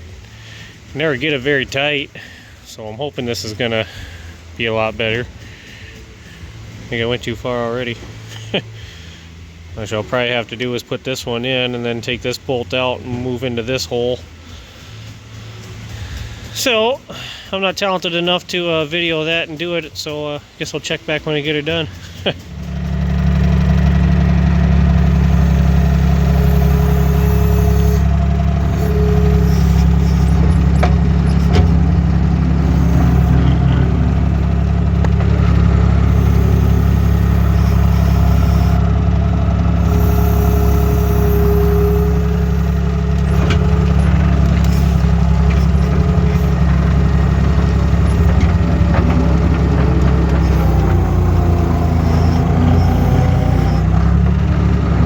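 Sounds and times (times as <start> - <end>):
loader engine droning: 0.0 - 16.7, 21.4 - 55.0.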